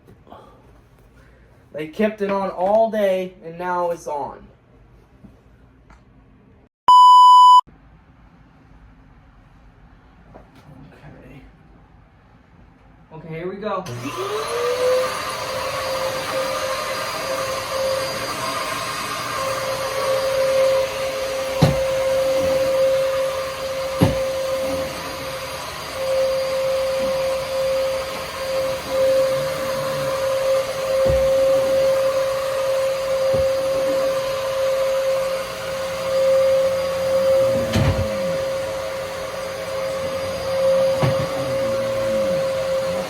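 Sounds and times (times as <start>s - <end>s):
vacuum cleaner whining: 13.9s - 43.0s.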